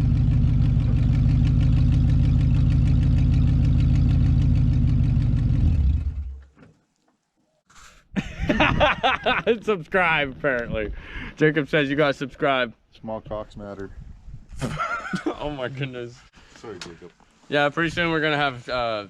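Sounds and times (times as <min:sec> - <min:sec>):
truck engine running: 0:00.0 - 0:06.4.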